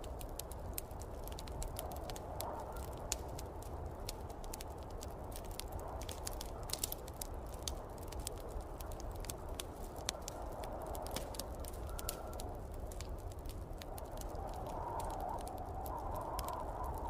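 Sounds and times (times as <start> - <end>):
wood fire crackling and popping: 0.0 - 17.0
snowstorm wind rushing: 13.0 - 17.0.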